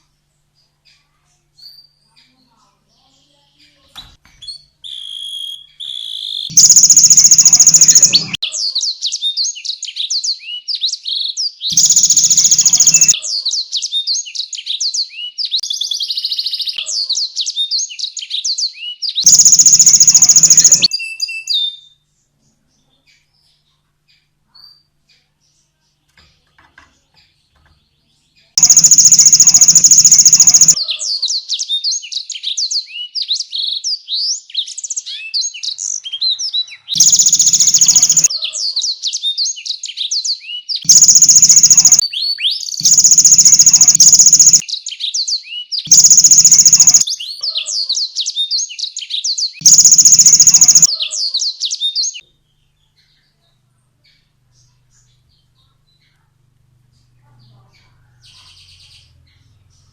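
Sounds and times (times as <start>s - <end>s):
canary singing: 4.8s - 8.6s, 11.7s - 13.3s, 19.2s - 21.5s, 28.6s - 31.0s, 36.9s - 38.6s, 40.8s - 44.6s, 45.9s - 47.7s, 49.6s - 52.2s.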